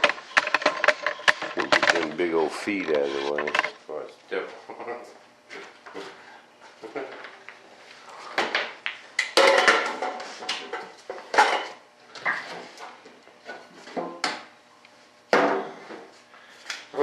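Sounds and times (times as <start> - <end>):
items clattering on a workbench: 0.0 - 3.8, 8.3 - 14.5.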